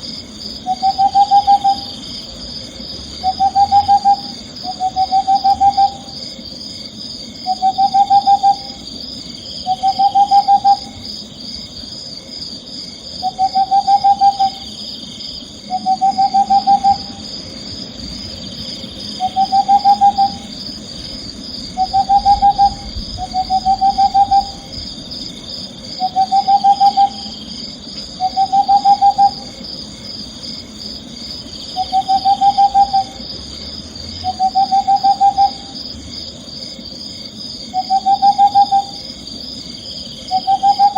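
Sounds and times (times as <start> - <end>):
high pulsing chirr: 0.0 - 40.9
owl trilled hoots: 0.6 - 2.3, 3.2 - 6.3, 7.4 - 8.9, 9.6 - 11.1, 13.2 - 14.8, 15.7 - 17.3, 19.0 - 20.6, 21.7 - 25.0, 26.0 - 27.4, 28.2 - 29.6, 31.7 - 33.2, 34.2 - 35.8, 37.7 - 39.2, 40.3 - 40.9.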